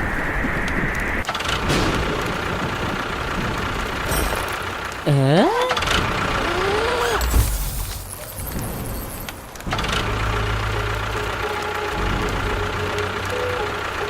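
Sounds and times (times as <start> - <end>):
voice-like call: 5.1 - 5.8, 6.4 - 7.2
motor rumbling: 8.6 - 14.0.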